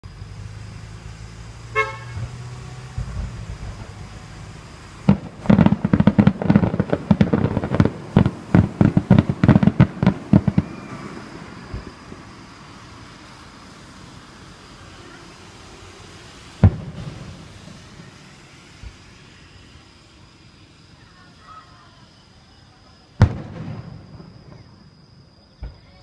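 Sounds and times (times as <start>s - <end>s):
short horn-like toot: 1.7s - 2.4s
fireworks bangs: 1.7s - 13.0s, 16.1s - 19.2s, 23.2s - 24.9s.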